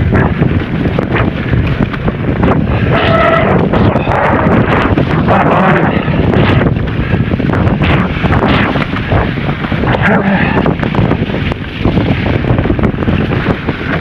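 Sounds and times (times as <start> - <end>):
bike knocks and rattles: 0.0 - 5.3, 10.6 - 14.0
wind buffeting microphone: 0.0 - 14.0.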